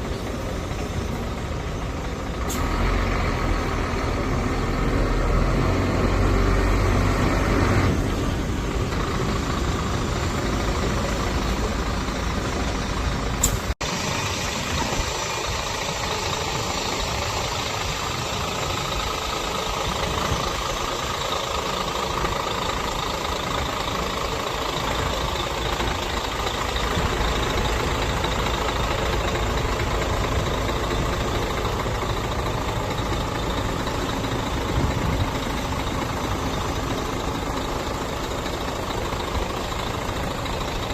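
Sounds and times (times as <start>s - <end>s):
diesel truck engine idling: 0.0s - 40.9s
sharp click: 13.4s - 13.7s.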